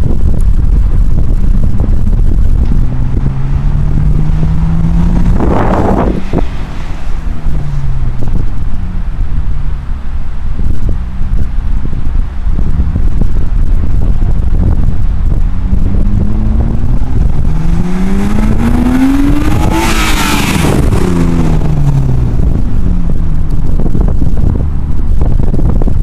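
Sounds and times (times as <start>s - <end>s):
wind rumble on microphone: 0.0s - 26.0s
car engine accelerating past: 2.6s - 9.2s, 15.3s - 22.6s.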